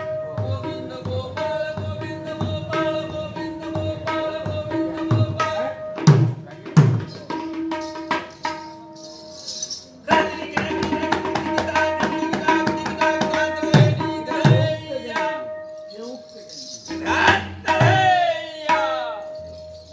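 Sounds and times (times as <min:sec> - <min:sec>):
hand cymbals clinking: 0:07.1 - 0:10.6, 0:15.7 - 0:17.4.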